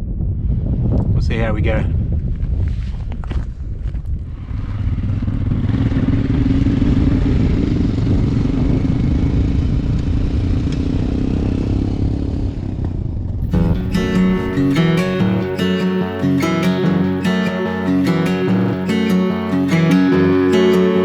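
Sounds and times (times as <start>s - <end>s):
wind noise: 0.0s - 10.6s
motorcycle engine running: 4.6s - 13.3s.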